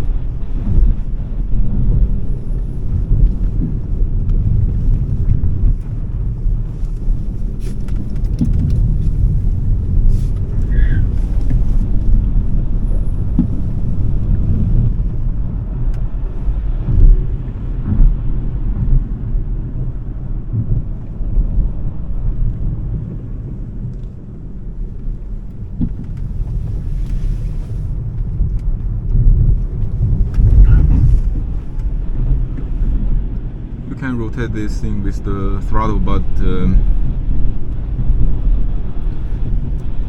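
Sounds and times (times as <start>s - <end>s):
tyre and road rumble: 0.0s - 40.0s.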